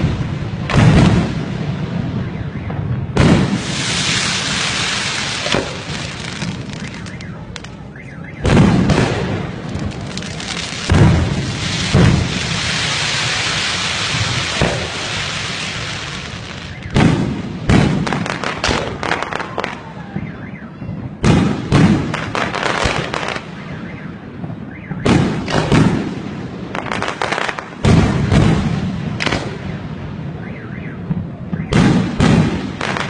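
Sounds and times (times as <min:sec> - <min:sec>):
fireworks banging and crackling: 0:00.0 - 0:33.0
firework hissing rush: 0:03.4 - 0:07.1, 0:09.2 - 0:16.8.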